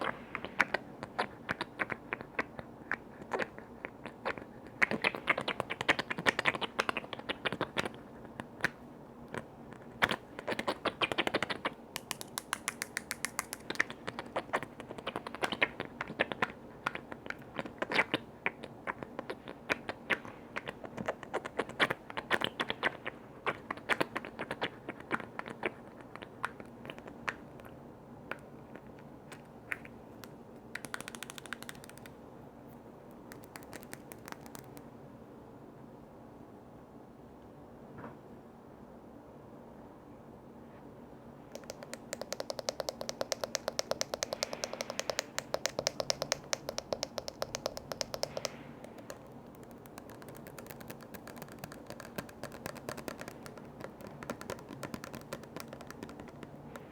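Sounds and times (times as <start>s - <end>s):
rapid tapping on container lids: 10.1s - 16.5s, 30.8s - 32.1s, 41.6s - 56.9s.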